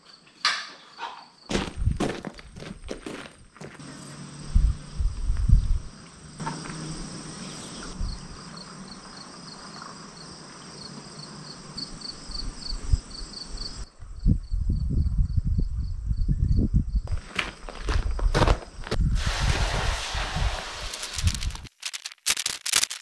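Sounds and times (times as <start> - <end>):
insects chirping: 0.0 - 19.2
steady hiss: 18.9 - 21.9.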